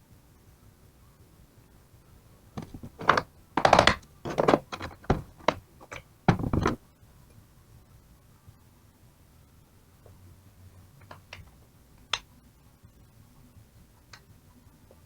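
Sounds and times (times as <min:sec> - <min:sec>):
knocks and clunks of tools and parts: 0:02.6 - 0:06.8
short rattle: 0:02.6 - 0:06.8.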